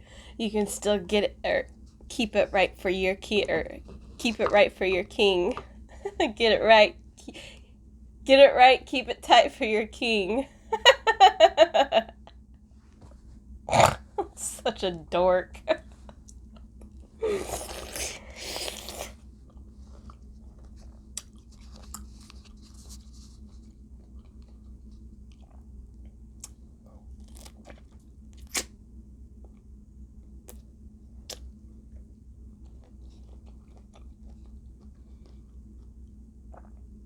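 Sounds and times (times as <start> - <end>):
steady low hum: 0.0 - 37.0
quiet chewing: 3.4 - 4.6, 15.8 - 28.7, 29.4 - 37.0
food crunching: 16.2 - 28.7, 30.5 - 37.0.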